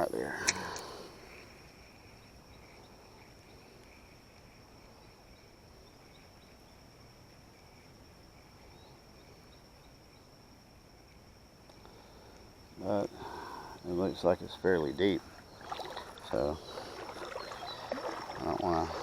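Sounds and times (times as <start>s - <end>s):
crickets trilling: 0.0s - 19.0s
pulsing insect buzz: 15.0s - 19.0s.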